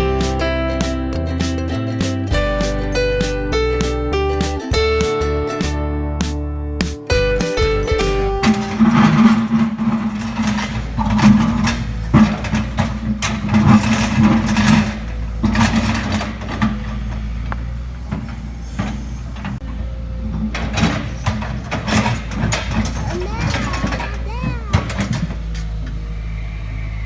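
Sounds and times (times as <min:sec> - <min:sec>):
excavator engine running: 0:07.1 - 0:26.1.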